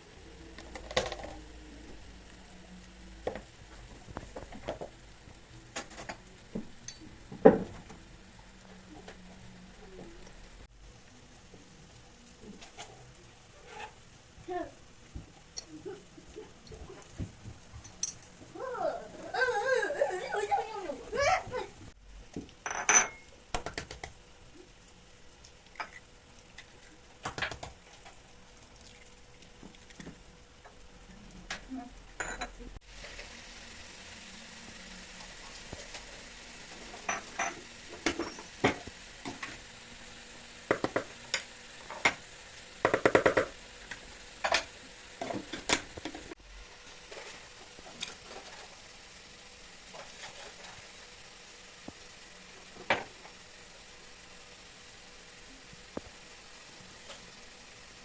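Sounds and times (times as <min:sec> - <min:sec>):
utensils and dishes clattering: 0:22.6 - 0:23.3, 0:36.7 - 0:38.9.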